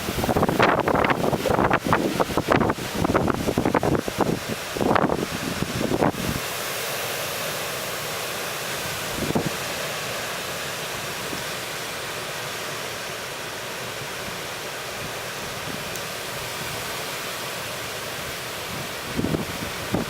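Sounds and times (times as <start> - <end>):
wind gust buffeting microphone: 0.0 - 6.4, 18.7 - 20.0
strong wind roaring: 0.0 - 6.5, 8.9 - 9.6, 18.2 - 20.0.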